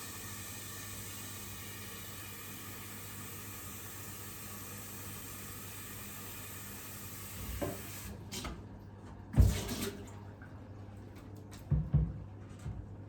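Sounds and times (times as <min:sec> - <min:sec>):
water running from a tap: 0:00.0 - 0:08.2
knocks and clunks at a sink: 0:07.3 - 0:10.2, 0:11.2 - 0:12.9.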